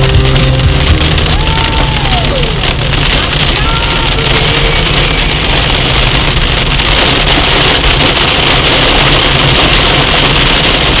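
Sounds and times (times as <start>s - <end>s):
low rumble: 0.0s - 3.6s
heavy rain falling: 0.0s - 11.0s.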